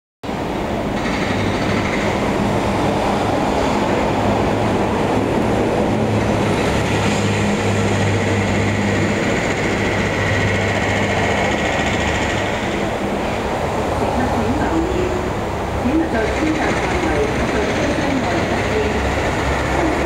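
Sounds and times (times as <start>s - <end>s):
electric train rumbling: 0.2s - 20.0s.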